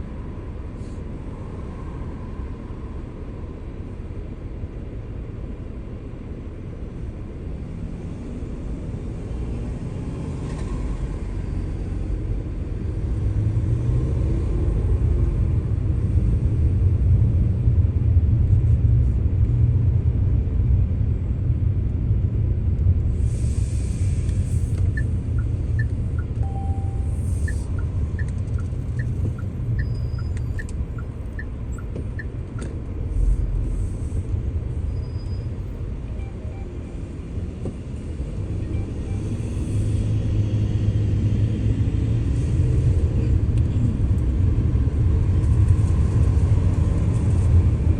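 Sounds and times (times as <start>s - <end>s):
car road and engine rumble: 0.0s - 47.9s
light two-pitch ticks: 24.9s - 32.7s.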